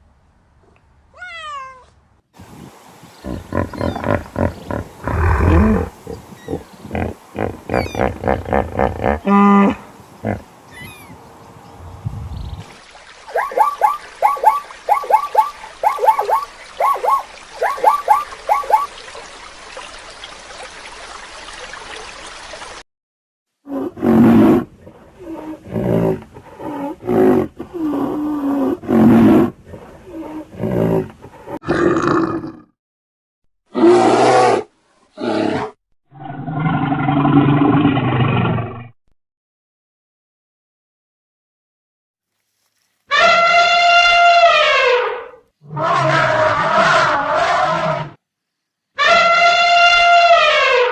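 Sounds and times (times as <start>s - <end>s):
loud deep animal calls: 3.2s - 11.2s
short high animal calls: 7.7s - 8.1s, 10.7s - 11.2s.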